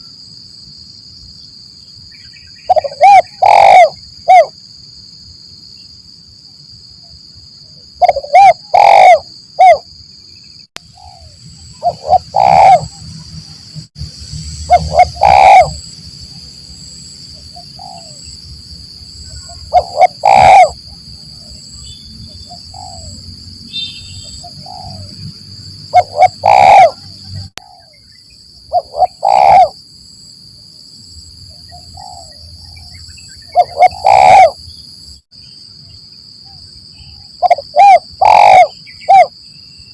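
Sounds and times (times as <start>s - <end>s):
high-pitched insect drone: 0.0s - 39.9s
dove cooing: 2.7s - 4.5s, 8.0s - 9.8s, 10.9s - 13.0s, 14.6s - 15.8s, 17.5s - 18.2s, 19.4s - 21.5s, 22.5s - 23.2s, 24.4s - 25.2s, 25.9s - 27.9s, 28.7s - 29.8s, 31.9s - 32.8s, 33.5s - 34.6s, 37.4s - 39.3s.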